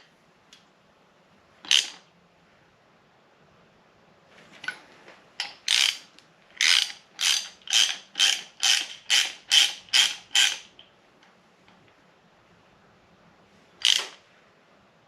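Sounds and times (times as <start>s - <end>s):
ratchet wrench rasping: 5.7s - 6.0s, 6.6s - 10.7s.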